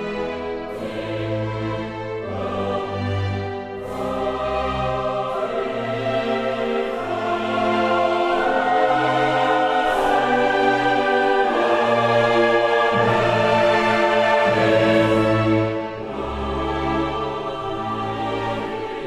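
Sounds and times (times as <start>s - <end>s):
slow choir-like background music: 0.0s - 19.0s.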